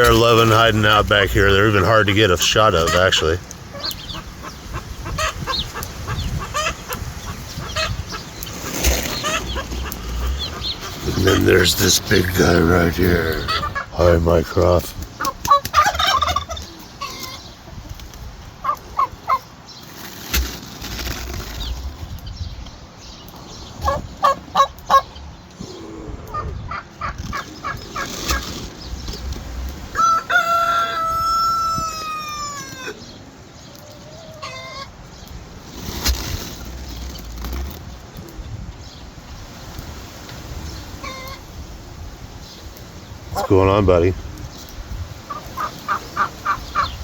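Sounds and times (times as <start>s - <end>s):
turkey calling: 0.0s - 17.5s, 18.6s - 21.9s, 23.7s - 25.3s, 26.3s - 33.1s, 33.7s - 35.0s, 40.9s - 41.5s, 45.2s - 47.0s
chickens clucking: 0.0s - 38.5s, 39.6s - 41.6s, 42.4s - 47.0s
low rumble: 9.2s - 12.3s.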